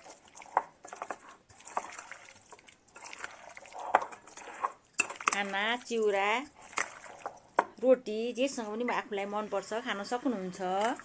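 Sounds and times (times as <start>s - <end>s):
wet food squelching in a bowl: 0.0s - 7.6s.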